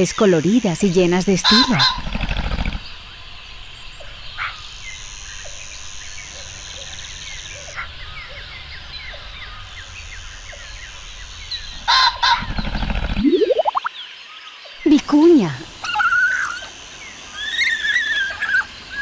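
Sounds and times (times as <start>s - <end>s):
small bird chirps: 12.6s - 14.0s.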